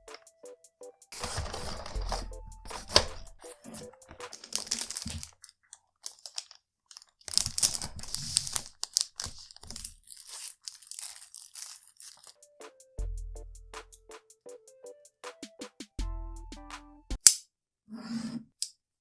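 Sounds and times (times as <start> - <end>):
packaging crinkling and tearing: 4.3 - 12.4.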